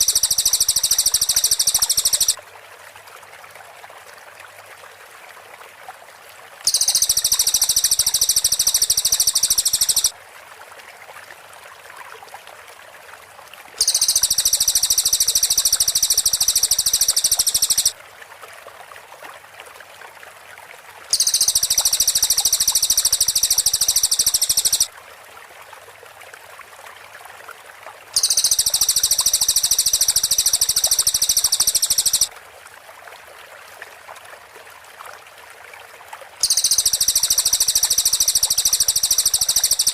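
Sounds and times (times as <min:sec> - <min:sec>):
bird high-pitched trill: 0:00.0 - 0:02.4, 0:06.7 - 0:10.1, 0:13.8 - 0:17.9, 0:21.1 - 0:24.9, 0:28.2 - 0:32.3, 0:36.4 - 0:39.9
faint background hiss: 0:00.0 - 0:05.0, 0:05.9 - 0:11.8, 0:12.9 - 0:18.6, 0:20.7 - 0:33.0, 0:34.0 - 0:39.9.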